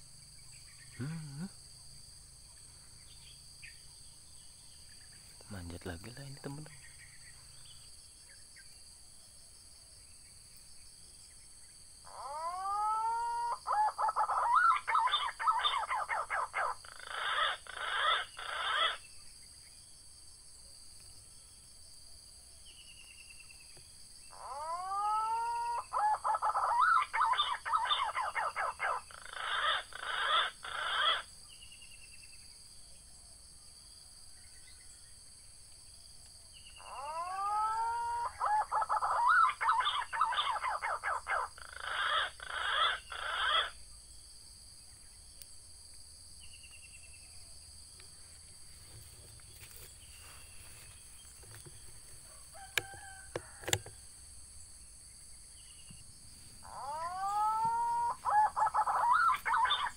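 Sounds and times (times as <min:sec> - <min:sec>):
pigeon whistled call: 0:24.5 - 0:31.2, 0:36.9 - 0:43.7, 0:56.7 - 0:59.9.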